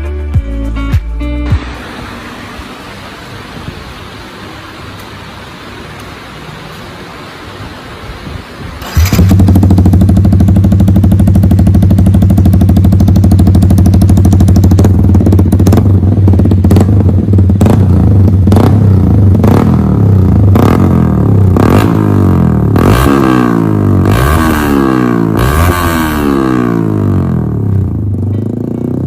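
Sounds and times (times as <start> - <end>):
exhaust cracks: 8.8 - 29.0
motorcycle engine revving: 8.8 - 29.0.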